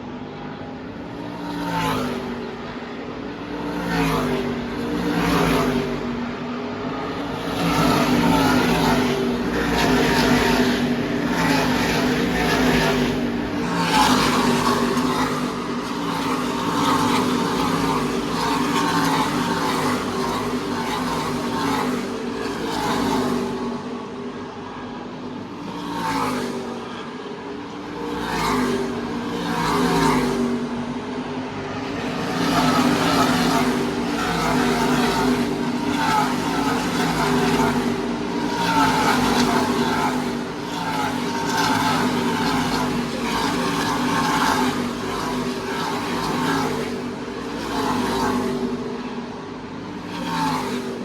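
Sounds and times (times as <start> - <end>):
race truck engines passing: 6.9 - 24.3, 31.7 - 48.9.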